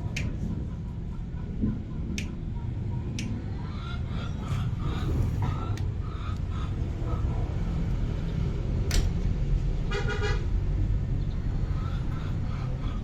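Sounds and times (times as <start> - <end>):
steady low rumble: 0.0 - 13.0
vehicle horn toot: 9.9 - 10.5.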